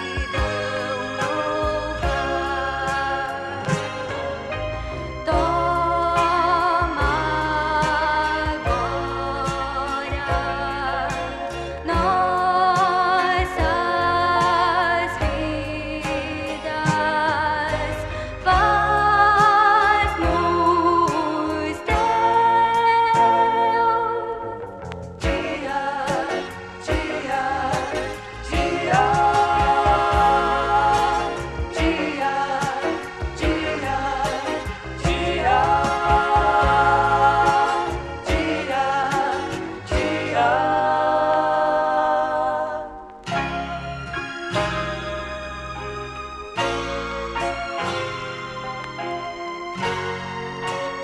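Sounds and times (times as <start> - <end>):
choir singing long notes: 0.0 - 15.0, 25.2 - 43.6
gospel song from a record: 0.0 - 51.0.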